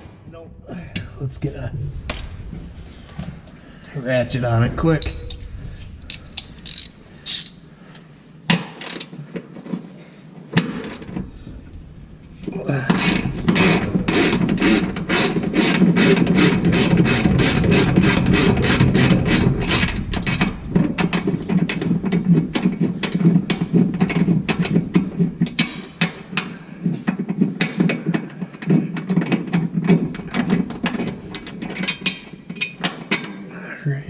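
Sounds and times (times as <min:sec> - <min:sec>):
hand ratchet clicking: 0:06.1 - 0:08.0.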